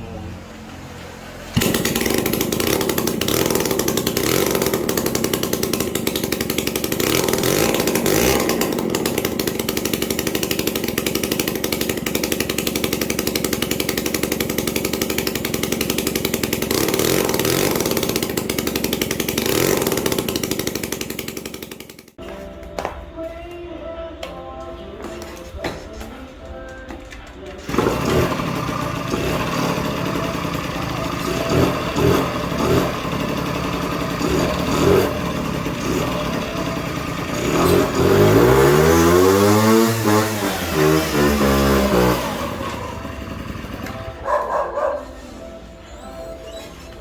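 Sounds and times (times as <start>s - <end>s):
motorcycle engine revving: 0.0s - 22.2s, 27.6s - 47.0s.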